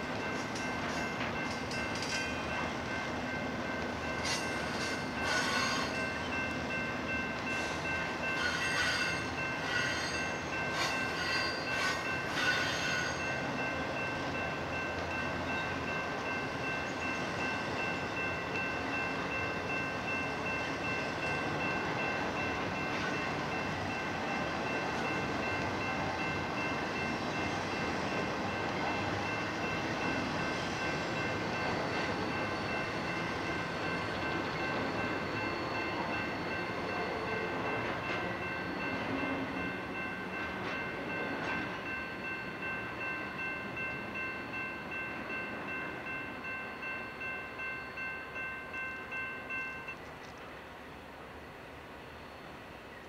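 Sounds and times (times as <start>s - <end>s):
train wheels rumbling on rails: 0.0s - 53.0s
high-pitched ringing tone: 0.3s - 50.0s.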